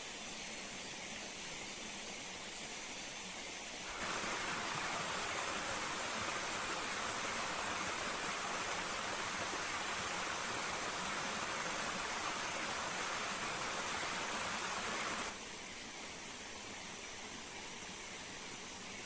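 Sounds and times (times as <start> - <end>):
waterfall rushing: 3.9 - 15.4.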